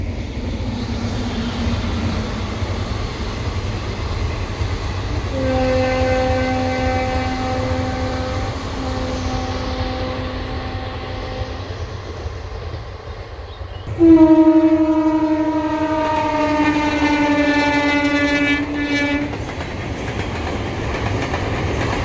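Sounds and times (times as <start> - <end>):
train rumbling: 0.0 - 22.0
train horn blast: 5.1 - 11.7, 13.9 - 19.4.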